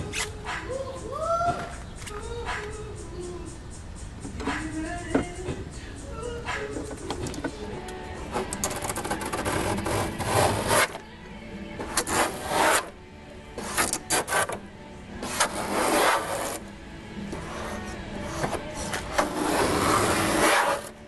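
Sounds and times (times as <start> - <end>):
rasping sanding strokes: 8.4 - 11.0, 11.8 - 12.9, 13.6 - 14.6, 15.2 - 16.6, 17.4 - 21.0.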